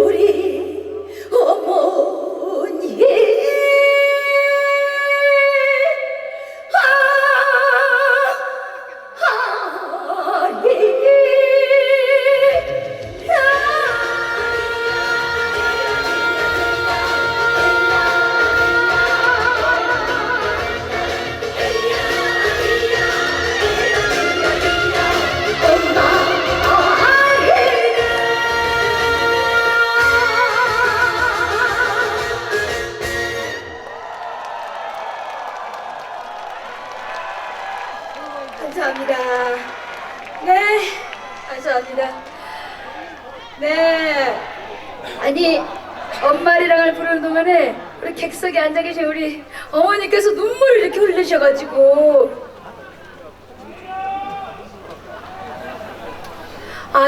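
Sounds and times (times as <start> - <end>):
woman singing with vibrato: 0.0 - 33.8, 43.5 - 52.6, 56.6 - 57.0
low band accompaniment: 12.6 - 33.8.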